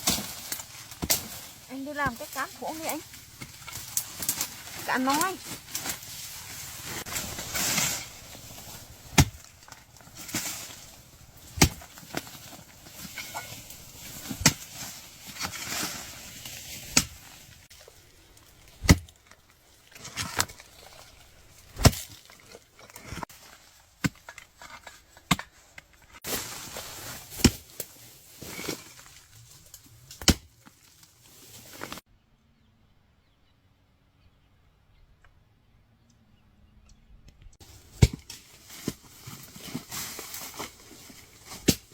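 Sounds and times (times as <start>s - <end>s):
scraping and rustling: 0.0s - 19.2s
hand tool chopping strikes: 9.1s - 9.5s, 11.5s - 12.0s, 14.2s - 14.7s, 18.8s - 19.0s, 38.0s - 38.4s.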